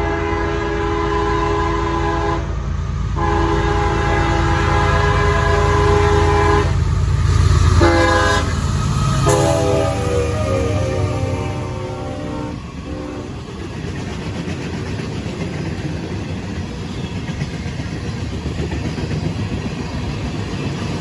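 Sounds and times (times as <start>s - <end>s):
locomotive air horn blasts: 0.0s - 2.5s, 3.2s - 6.8s, 7.8s - 13.4s
diesel engine rumble: 5.7s - 13.5s.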